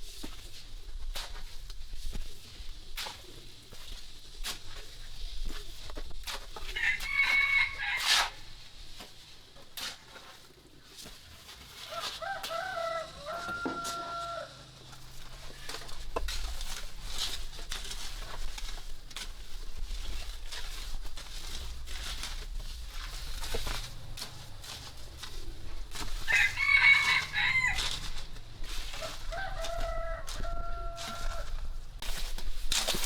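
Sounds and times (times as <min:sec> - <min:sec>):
rooster crowing: 0:06.8 - 0:08.4, 0:11.8 - 0:14.7, 0:25.9 - 0:31.8.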